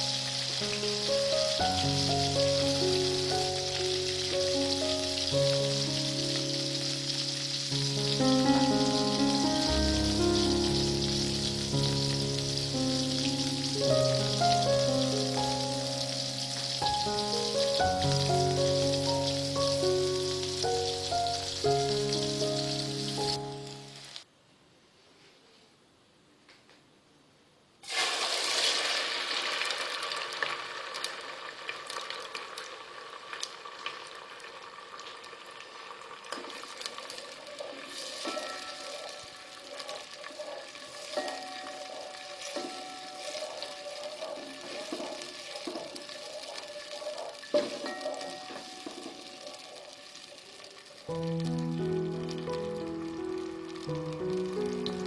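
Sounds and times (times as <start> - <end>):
soft instrumental music: 0.0 - 24.2, 51.1 - 55.0
water running: 0.0 - 24.2, 35.1 - 55.0
steady hiss: 0.0 - 25.6, 36.8 - 55.0.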